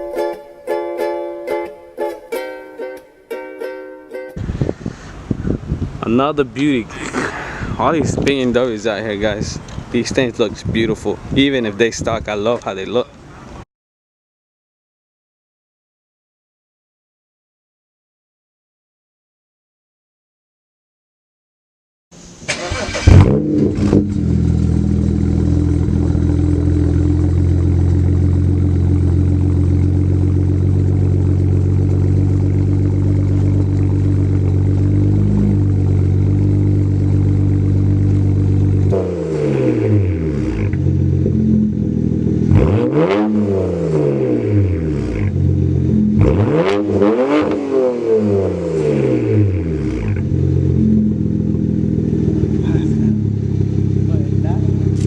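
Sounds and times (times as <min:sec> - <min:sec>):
car engine idling and revving: 0:22.2 - 0:55.0.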